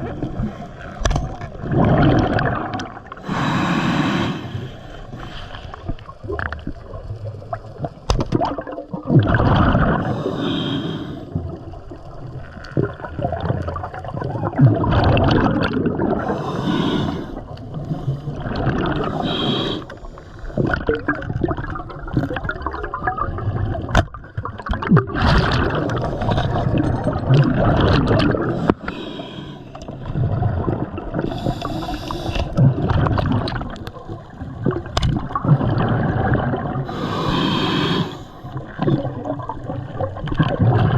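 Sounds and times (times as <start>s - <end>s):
bubbling gurgling exhalations: 0.0s - 11.9s, 12.5s - 29.0s, 29.8s - 40.9s
hissing regulator inhalations: 3.2s - 5.8s, 10.0s - 11.3s, 16.2s - 18.4s, 19.0s - 20.4s, 28.5s - 29.9s, 31.3s - 32.6s, 36.9s - 38.6s.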